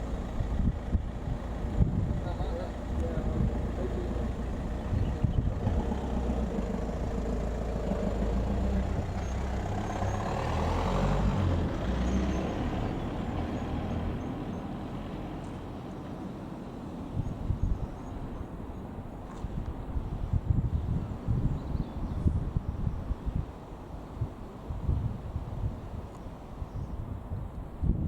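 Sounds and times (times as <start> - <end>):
diesel train engines running: 0.0 - 10.4.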